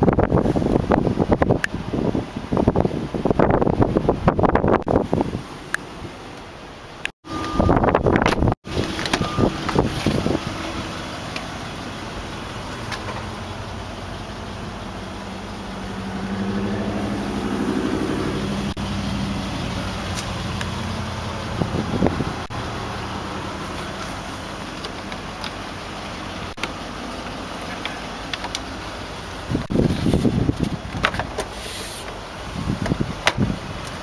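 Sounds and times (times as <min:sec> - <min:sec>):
car engine idling: 0:00.1 - 0:34.0
car door knocks and rustles: 0:32.8 - 0:33.6.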